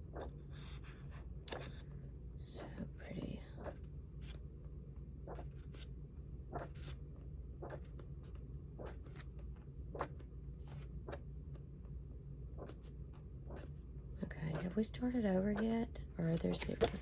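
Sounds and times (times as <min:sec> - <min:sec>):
paper pages turning: 0:16.3 - 0:17.0.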